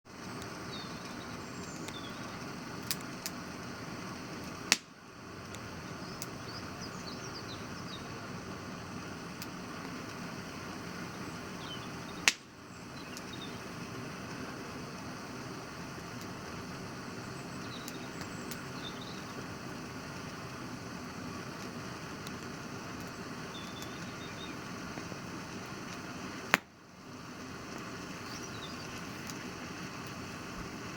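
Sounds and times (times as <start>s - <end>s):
campfire crackling: 0.1s - 30.9s
wood popping: 24.9s - 26.8s.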